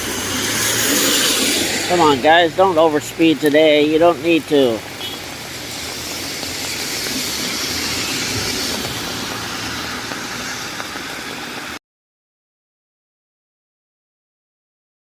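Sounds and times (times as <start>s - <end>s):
tyres hissing through water: 0.0s - 11.8s.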